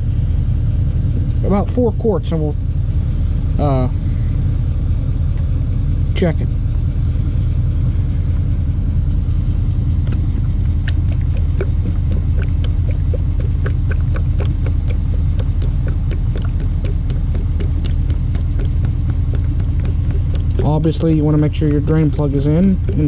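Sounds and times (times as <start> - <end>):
engine idling: 0.0 - 23.0
oil gurgling into funnel: 9.8 - 23.0.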